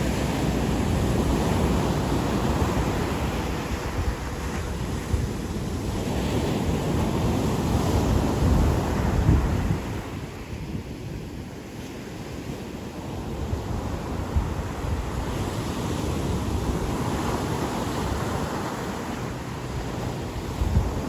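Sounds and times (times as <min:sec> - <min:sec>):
waves breaking on beach: 0:00.0 - 0:21.0
wind rumble on microphone: 0:00.0 - 0:21.0.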